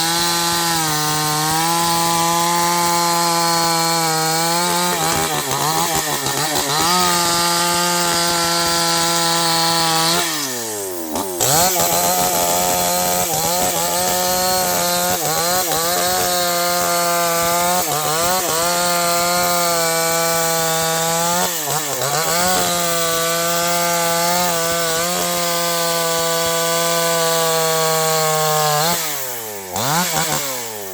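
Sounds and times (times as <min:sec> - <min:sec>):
chainsaw cutting wood: 0:00.0 - 0:30.9.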